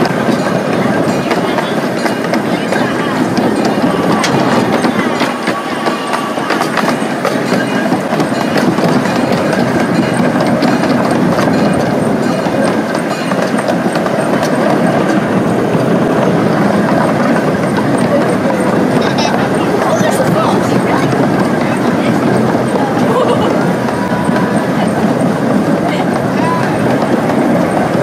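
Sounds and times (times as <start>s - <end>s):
train running on track: 0.0s - 28.0s
wheels clicking and knocking: 0.0s - 28.0s.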